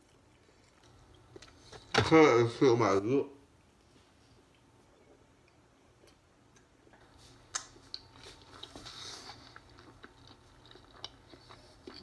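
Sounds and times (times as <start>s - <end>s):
soft chewing and lip smacks: 0.0s - 1.9s, 3.6s - 12.0s.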